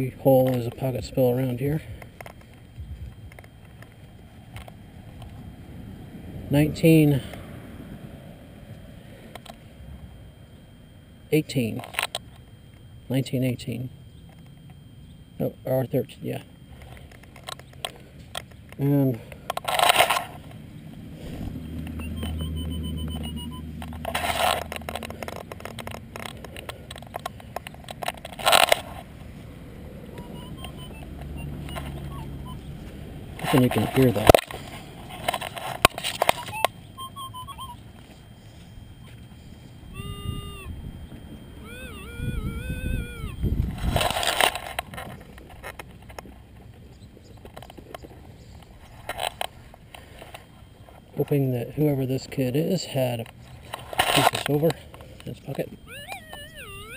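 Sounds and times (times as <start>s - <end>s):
metal detector beeps: 0.0s - 5.5s, 9.2s - 56.9s
low steady hum: 0.0s - 56.9s
rustling and scraping of soil: 16.7s - 22.2s, 23.3s - 29.6s, 32.6s - 36.6s, 37.9s - 39.8s, 43.6s - 55.6s
small clicks: 21.8s - 29.0s
digging and scraping soil: 23.8s - 26.6s, 43.7s - 45.7s, 52.7s - 54.8s.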